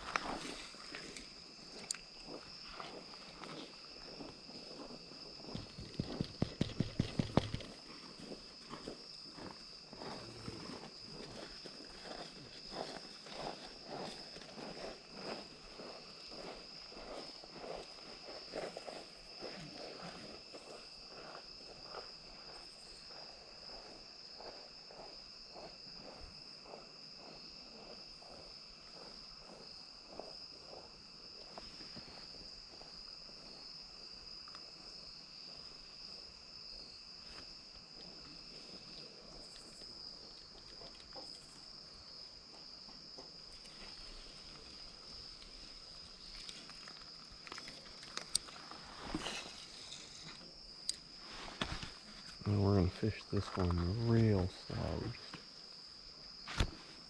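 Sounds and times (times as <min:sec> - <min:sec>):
footsteps on creek bank: 0:00.0 - 0:34.2, 0:42.4 - 0:55.8
high-pitched insect chorus: 0:00.0 - 0:57.0
lower insect trill: 0:00.0 - 0:57.0.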